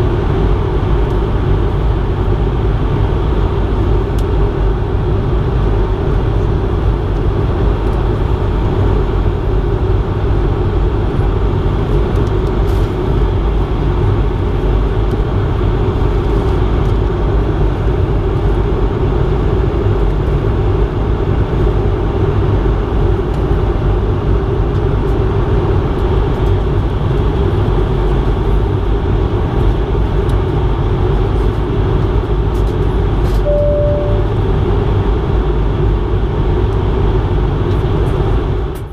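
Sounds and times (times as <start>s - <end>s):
low jet engine drone: 33.0s - 36.7s
short beep: 33.4s - 34.4s.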